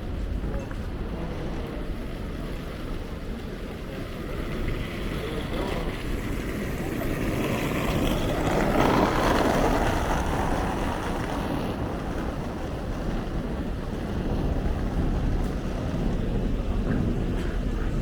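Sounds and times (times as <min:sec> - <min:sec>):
steady low rumble: 0:10.0 - 0:18.0.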